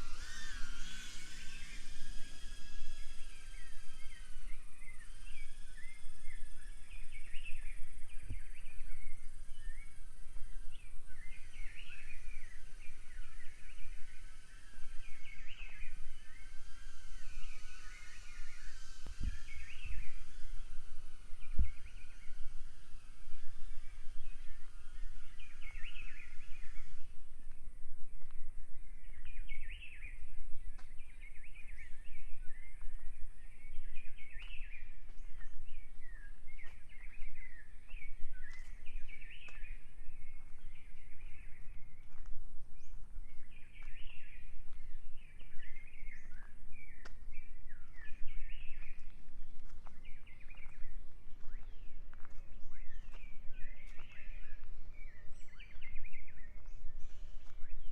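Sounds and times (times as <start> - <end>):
birds warbling: 0.0 - 27.6
low rumble: 0.0 - 57.9.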